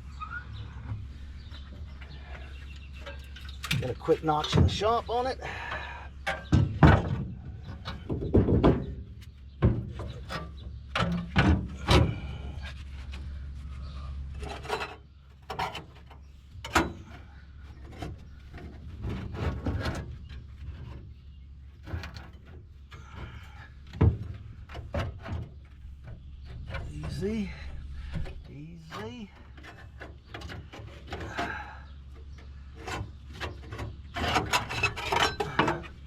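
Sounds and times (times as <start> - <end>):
sheet metal knocking and scraping: 5.5 - 12.4, 21.8 - 31.6, 32.3 - 36.0.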